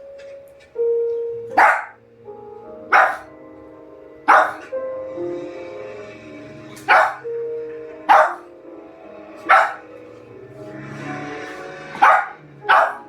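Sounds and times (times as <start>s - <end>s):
dog barking: 1.5s - 2.0s, 2.9s - 3.3s, 4.3s - 4.7s, 6.8s - 7.3s, 8.1s - 8.5s, 9.4s - 9.9s, 11.9s - 13.0s.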